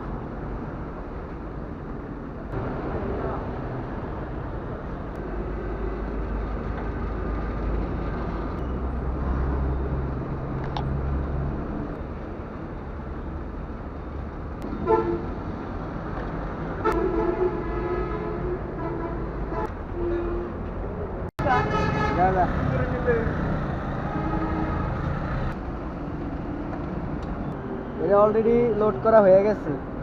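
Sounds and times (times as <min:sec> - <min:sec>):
road traffic rumbling: 0:00.0 - 0:30.0
vehicle horn honking: 0:14.8 - 0:15.2.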